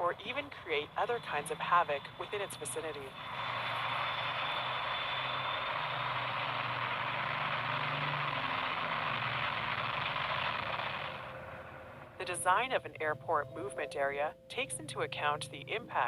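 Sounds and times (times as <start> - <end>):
jet engine running: 0.0 - 12.4.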